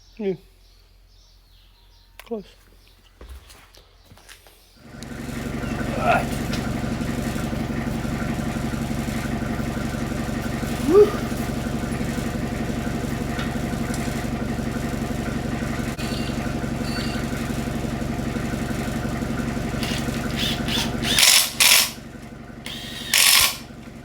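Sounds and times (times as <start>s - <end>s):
engine idling: 4.8s - 24.0s
loud bursts of mechanical noise: 4.8s - 24.0s.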